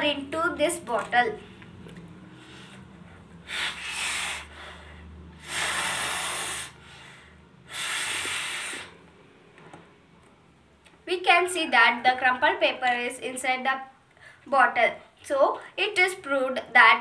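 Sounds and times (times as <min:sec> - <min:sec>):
forceful breath blown into bottle: 0:02.2 - 0:09.0.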